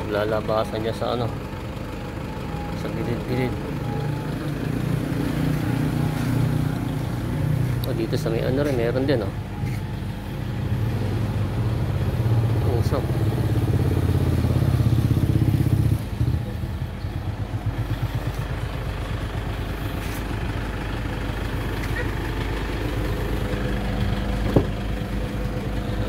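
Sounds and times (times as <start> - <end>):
car engine idling: 0.0 - 26.0
short knock: 24.5 - 24.8.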